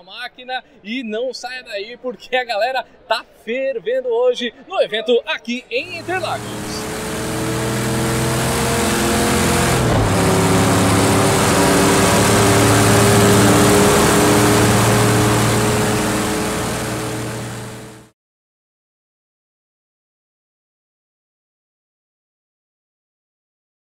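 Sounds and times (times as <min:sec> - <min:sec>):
car engine at high revs: 0:05.8 - 0:18.1.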